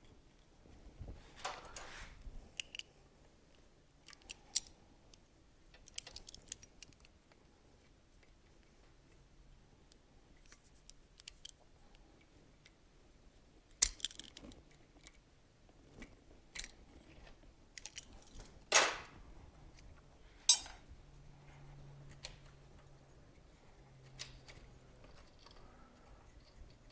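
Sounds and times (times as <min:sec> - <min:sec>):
metal tools clicking and clinking: 0:20.5 - 0:20.8.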